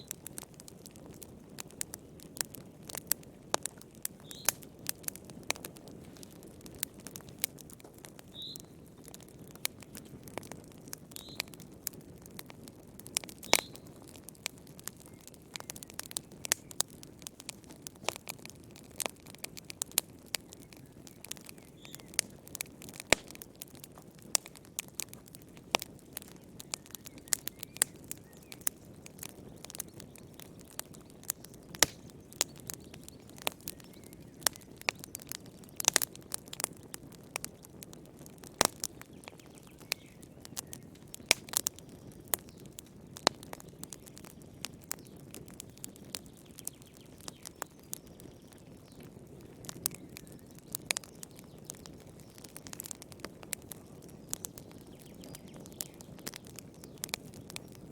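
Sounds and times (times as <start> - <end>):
firewood crackling and popping: 0.0 - 57.9.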